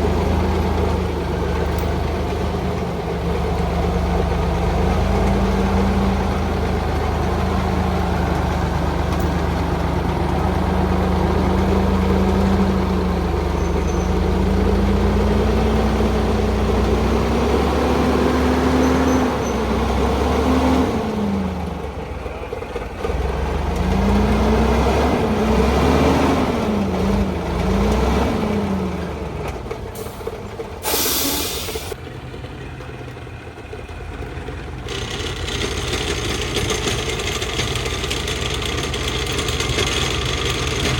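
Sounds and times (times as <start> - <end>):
truck engine revving: 0.0 - 32.0
sharp hiss: 30.8 - 32.0.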